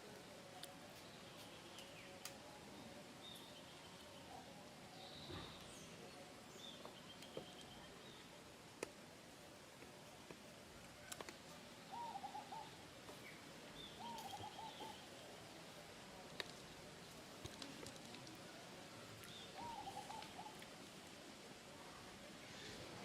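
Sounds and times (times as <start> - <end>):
wavering hooting bird call: 11.9 - 12.8, 19.6 - 20.6.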